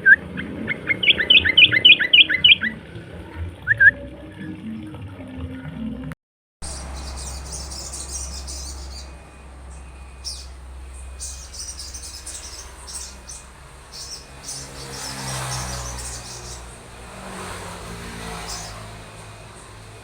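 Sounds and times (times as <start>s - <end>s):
songbird chirping: 0.0s - 2.8s, 6.6s - 20.0s
vehicle engine passing: 6.6s - 20.0s.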